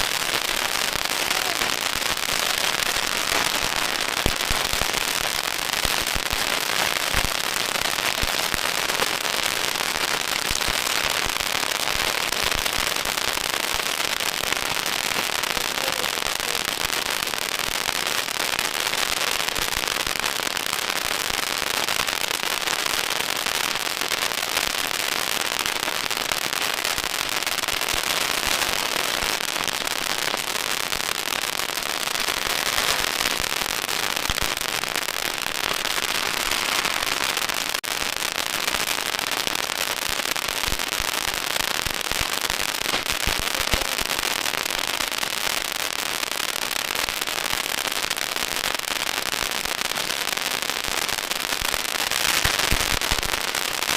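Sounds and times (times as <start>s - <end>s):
firecrackers crackling: 0.0s - 53.9s.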